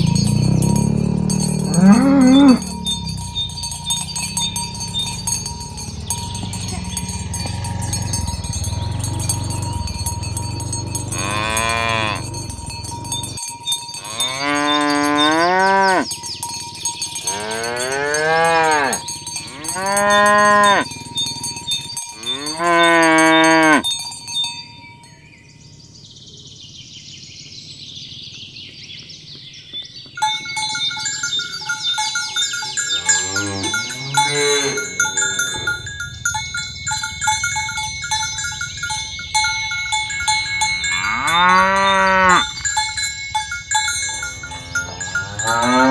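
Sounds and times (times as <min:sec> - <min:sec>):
cattle mooing: 0:00.0 - 0:13.4, 0:14.0 - 0:16.1, 0:17.2 - 0:21.1, 0:22.2 - 0:23.8, 0:32.9 - 0:36.1, 0:40.8 - 0:42.6, 0:44.2 - 0:45.9
bells ringing: 0:00.0 - 0:25.9, 0:30.2 - 0:45.9.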